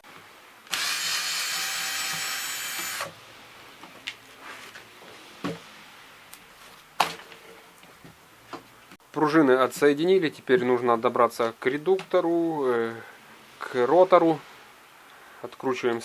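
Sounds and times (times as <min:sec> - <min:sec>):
electric screwdriver motor running: 0:00.7 - 0:03.1.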